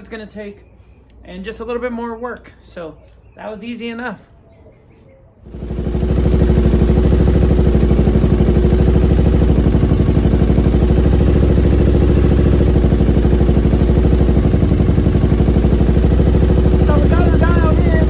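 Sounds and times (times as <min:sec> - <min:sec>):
motorcycle engine idling: 0:05.4 - 0:18.0.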